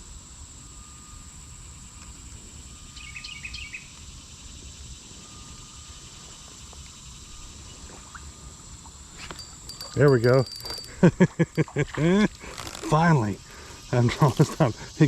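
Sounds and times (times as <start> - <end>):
high-pitched insect drone: 0.0 - 15.0
bird chirping: 3.0 - 3.9.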